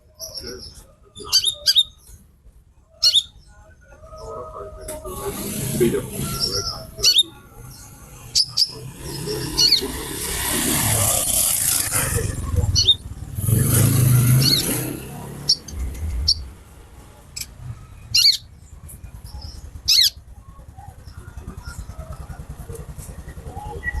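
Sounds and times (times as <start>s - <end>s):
bird giving sharp high chirps: 0.2s - 2.1s, 3.0s - 3.4s, 6.1s - 10.4s, 12.7s - 16.5s, 17.4s - 18.6s, 19.2s - 20.2s
passing motor vehicle rushing: 4.9s - 24.0s.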